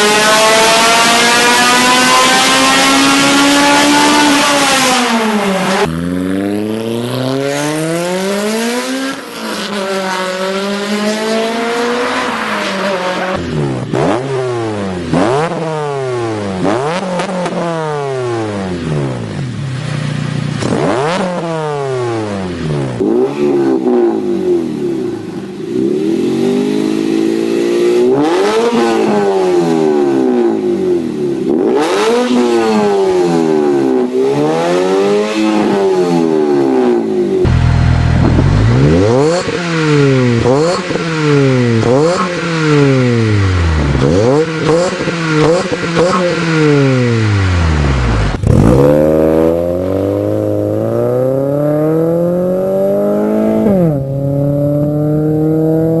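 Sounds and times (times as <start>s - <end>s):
car engine revving: 0.0s - 56.0s
engine blips: 37.4s - 48.9s.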